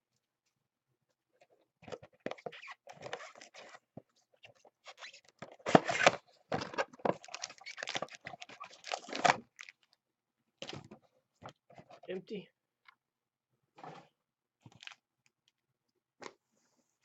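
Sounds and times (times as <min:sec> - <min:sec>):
packaging crinkling and tearing: 0:04.9 - 0:09.9, 0:14.7 - 0:15.0.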